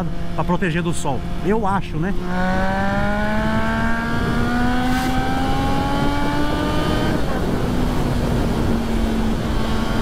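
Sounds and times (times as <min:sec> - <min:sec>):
motorcycle engine accelerating: 0:00.0 - 0:10.0
wind noise on microphone: 0:02.2 - 0:10.0.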